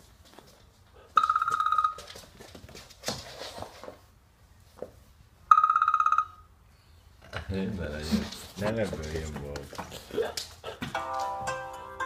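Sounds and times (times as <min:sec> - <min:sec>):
electronic trilling ring: 0:01.2 - 0:02.0, 0:05.5 - 0:06.5.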